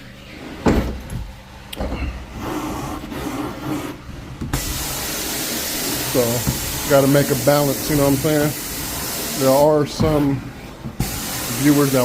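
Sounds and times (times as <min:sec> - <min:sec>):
cleaning wand spraying hiss: 0:04.6 - 0:09.8, 0:11.0 - 0:12.0.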